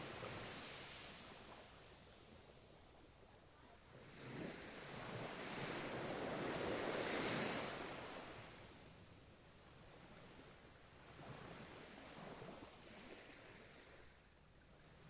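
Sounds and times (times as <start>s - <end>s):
ocean wave washing on shore: 4.0s - 8.6s.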